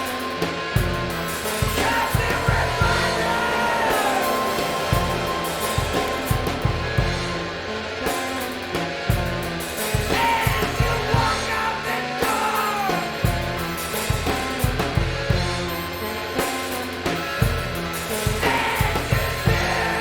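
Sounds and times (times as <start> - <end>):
sliding high notes: 0.0 - 10.0
held bass notes: 0.0 - 12.2
drums beating: 0.0 - 20.0.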